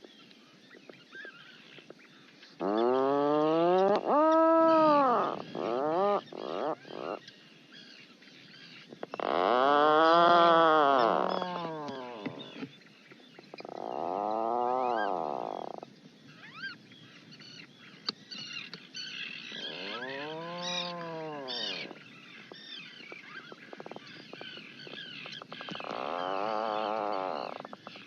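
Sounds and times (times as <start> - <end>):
auk moaning calls: 19.5 - 22.0, 25.8 - 27.6.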